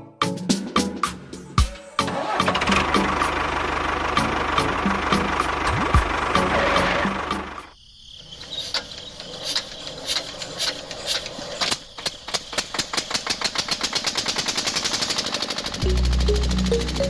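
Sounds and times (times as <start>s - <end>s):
music: 0.0s - 7.7s, 15.8s - 17.0s
rapid mechanical clicking: 8.7s - 17.0s.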